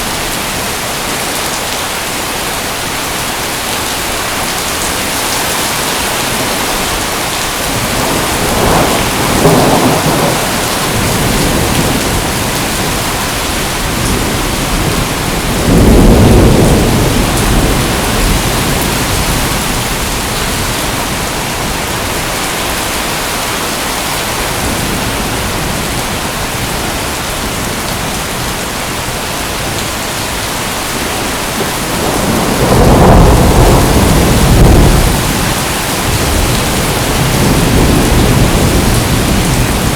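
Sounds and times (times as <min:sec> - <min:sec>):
heavy rain hissing: 0:00.0 - 0:39.9
thunder rolling: 0:07.6 - 0:22.0, 0:31.3 - 0:39.9.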